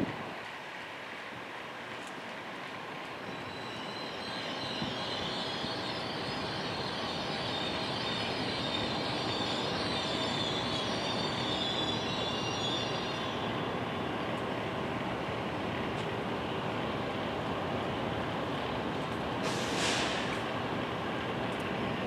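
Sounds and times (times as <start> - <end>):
train rumbling: 0.0 - 22.0
train wheels squealing: 3.2 - 13.8, 19.4 - 20.5.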